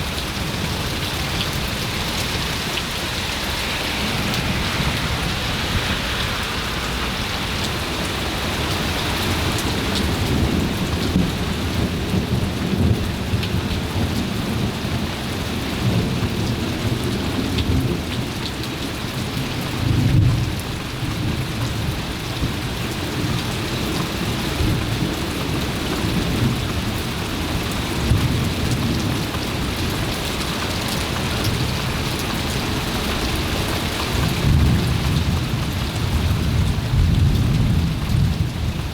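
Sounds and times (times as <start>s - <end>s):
thunder rumbling: 0.0s - 18.1s, 34.1s - 38.9s
rain falling: 0.0s - 38.9s.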